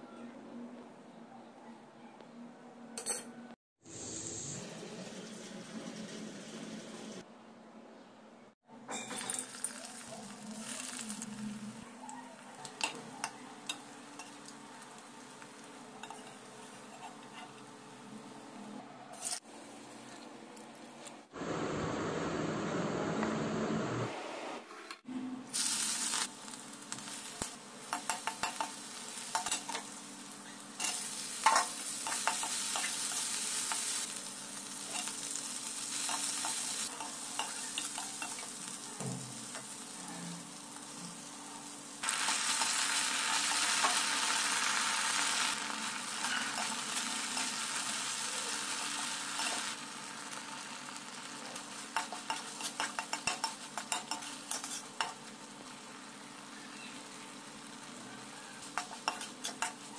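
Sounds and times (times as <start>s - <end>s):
onions sizzling in hot oil: 9.2s - 11.8s, 13.6s - 18.4s, 25.5s - 59.9s
metal spoon scraping a pan: 16.0s - 17.7s, 46.0s - 47.8s, 51.6s - 55.3s, 58.6s - 59.9s.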